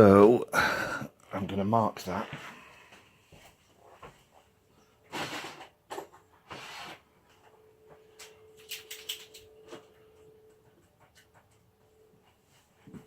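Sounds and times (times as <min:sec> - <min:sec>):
faint steady hum: 0:05.9 - 0:13.0.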